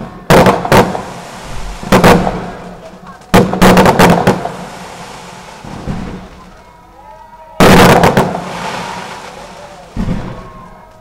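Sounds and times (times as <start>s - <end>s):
fireworks bursting: 0.0s - 11.0s
fireworks cracking: 0.0s - 11.0s.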